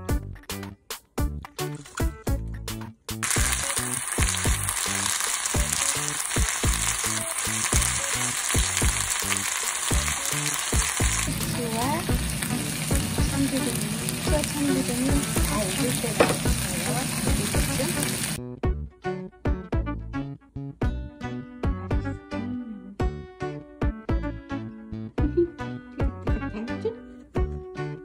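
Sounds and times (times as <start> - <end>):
meat and vegetables sizzling: 3.1 - 18.4.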